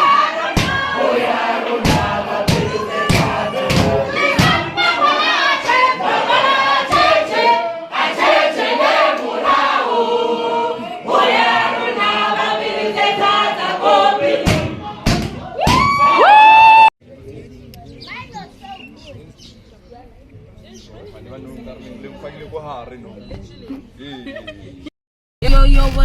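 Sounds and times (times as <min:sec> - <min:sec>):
group of voices singing: 0:00.0 - 0:15.6.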